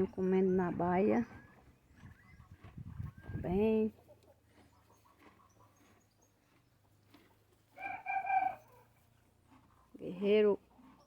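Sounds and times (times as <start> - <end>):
chicken calling: 7.7 - 8.9.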